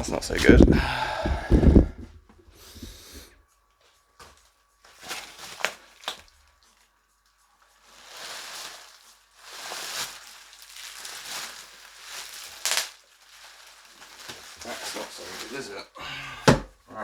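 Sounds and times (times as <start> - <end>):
packaging rustling: 4.2 - 7.0, 7.6 - 16.6.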